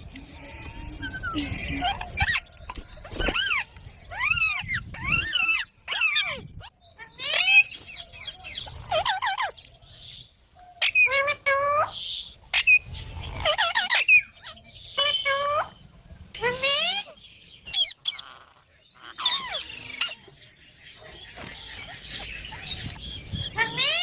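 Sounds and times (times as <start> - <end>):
parrot high calls: 10.8 - 15.8.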